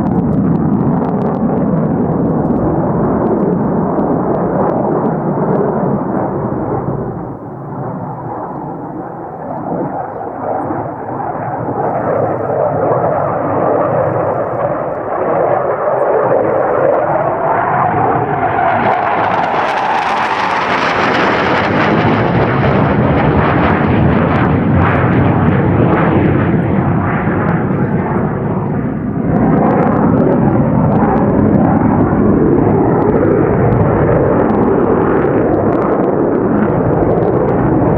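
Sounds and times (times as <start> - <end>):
jet fighter flying past: 0.0 - 37.9.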